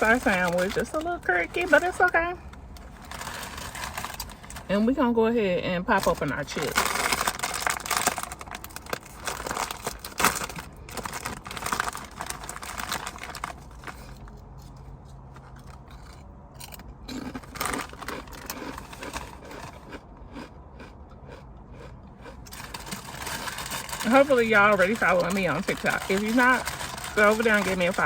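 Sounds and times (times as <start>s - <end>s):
potato chips being chewed: 6.0s - 28.0s.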